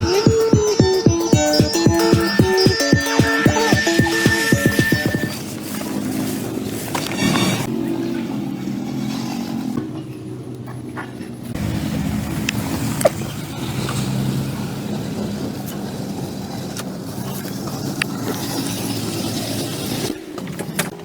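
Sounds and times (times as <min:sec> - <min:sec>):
engine running at low speed: 0:07.8 - 0:20.2.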